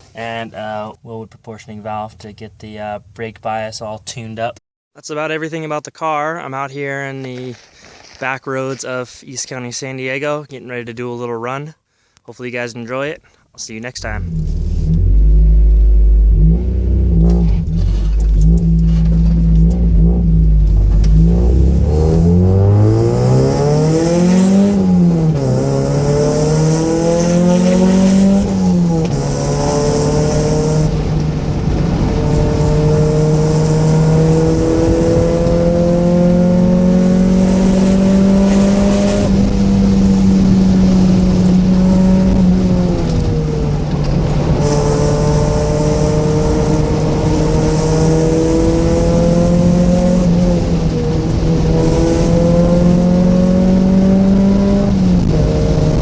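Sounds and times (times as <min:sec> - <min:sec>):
car engine accelerating through gears: 0:14.1 - 0:56.0.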